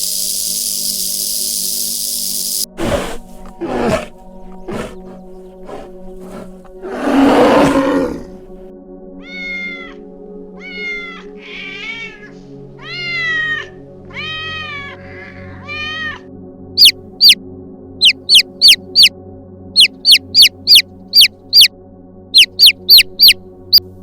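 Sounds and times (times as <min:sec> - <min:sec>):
background music: 0:02.7 - 0:24.0
cat meowing: 0:09.2 - 0:10.0, 0:10.6 - 0:16.2
high falling calls: 0:16.8 - 0:17.4, 0:18.0 - 0:19.1, 0:19.8 - 0:21.7, 0:22.4 - 0:23.4.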